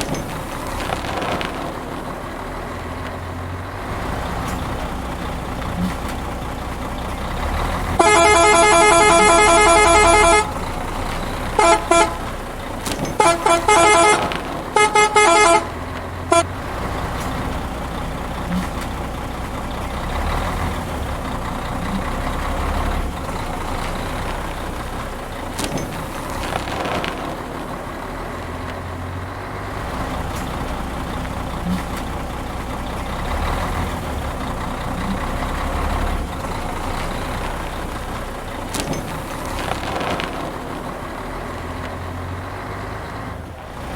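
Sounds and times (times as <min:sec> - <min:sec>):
truck engine rumbling: 0:00.0 - 0:43.9
truck horn honking: 0:07.8 - 0:16.8.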